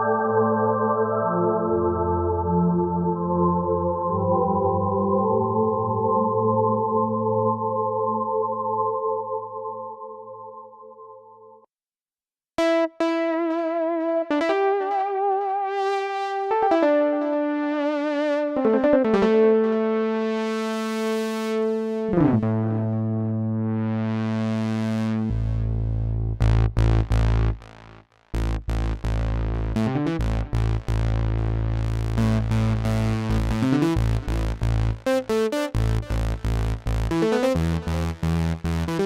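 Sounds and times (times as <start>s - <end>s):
synthesizer notes with vibrato: 12.6s - 39.0s
stuttering deep synth bass: 22.1s - 39.0s.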